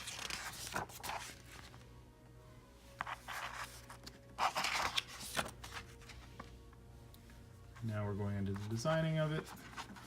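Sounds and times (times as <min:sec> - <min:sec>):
magazine page rustle: 0:00.0 - 0:01.8, 0:03.0 - 0:06.6, 0:07.8 - 0:10.0.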